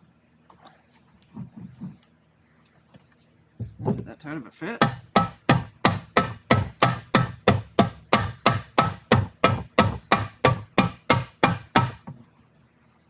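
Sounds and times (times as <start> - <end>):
hammer tapping metal: 4.8 - 12.1.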